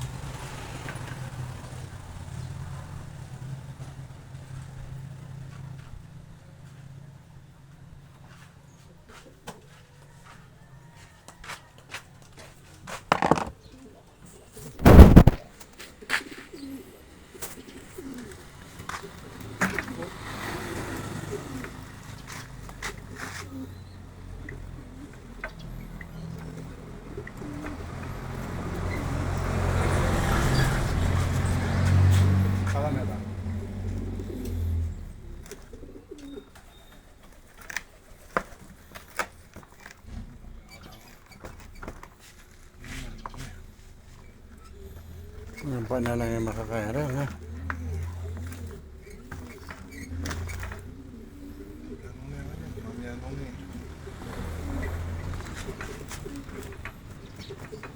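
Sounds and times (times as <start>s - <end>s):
loud thump: 13.1s - 13.5s, 14.8s - 15.4s
bird cooing: 13.2s - 15.4s, 16.0s - 32.0s, 33.1s - 38.3s, 43.1s - 57.9s.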